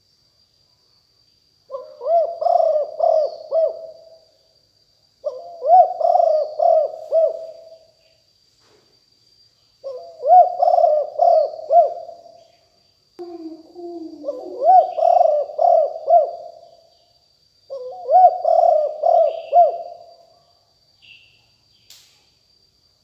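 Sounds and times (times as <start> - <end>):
dove cooing: 1.7 - 4.2, 5.2 - 7.8, 9.8 - 12.2, 13.2 - 16.6, 17.7 - 20.1.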